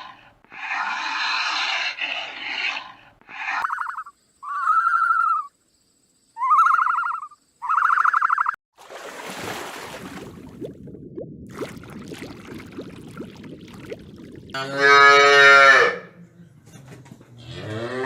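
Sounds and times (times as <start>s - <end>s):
bird harsh pulsed call: 3.4s - 5.5s, 6.4s - 8.6s.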